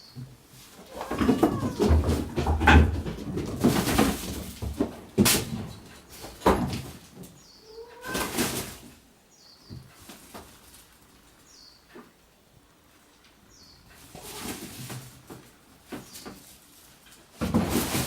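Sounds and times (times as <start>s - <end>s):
kittens scuffling and knocking: 0.1s - 9.0s, 9.6s - 12.1s, 13.8s - 18.0s
kittens mewing and squeaking: 0.8s - 3.1s, 7.4s - 8.7s, 14.0s - 14.8s.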